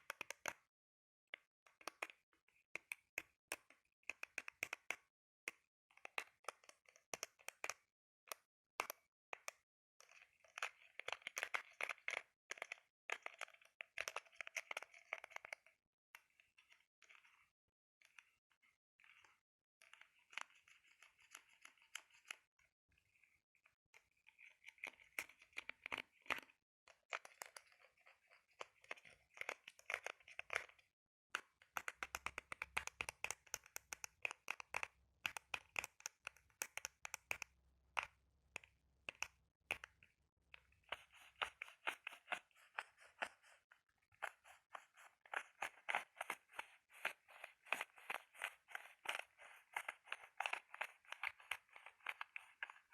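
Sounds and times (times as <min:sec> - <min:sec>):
scratching on an object: 0:40.7 - 0:52.9.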